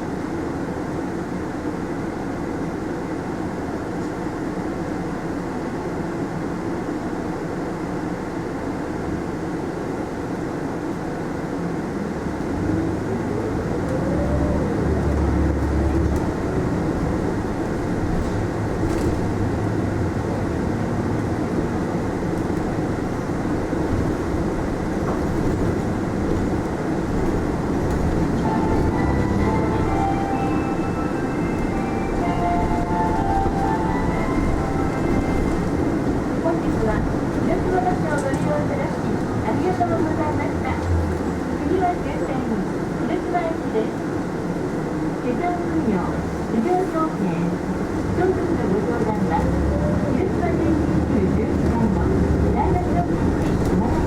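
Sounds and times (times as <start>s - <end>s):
bus cabin running noise: 0.0s - 54.0s
bus engine accelerating: 0.0s - 54.0s.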